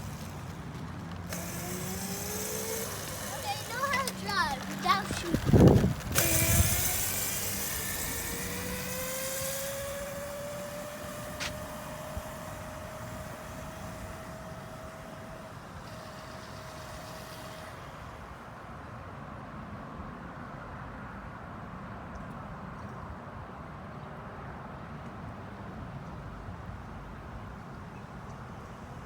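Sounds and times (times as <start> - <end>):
dirt bike engine pulling away: 0.0 - 18.6.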